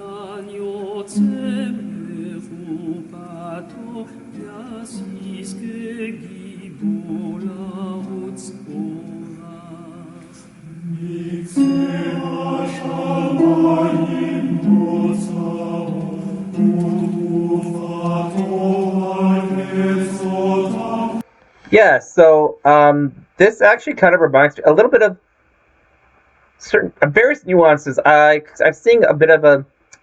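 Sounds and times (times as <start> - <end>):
chanting with held notes: 0.0 - 21.2.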